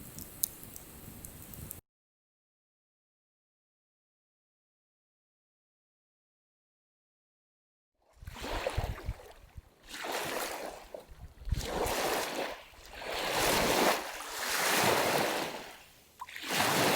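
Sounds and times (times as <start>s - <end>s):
wind buffeting microphone: 8.2s - 9.7s, 11.1s - 12.0s.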